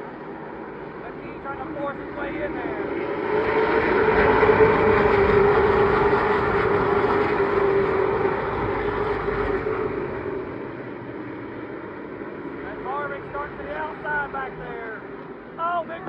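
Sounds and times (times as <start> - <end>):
race cars passing at full throttle: 0.0 - 16.0.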